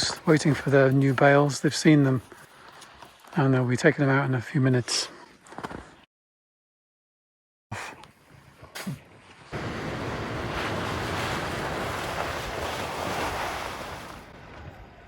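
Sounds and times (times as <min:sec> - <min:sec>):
wind buffeting microphone: 0:09.6 - 0:15.0.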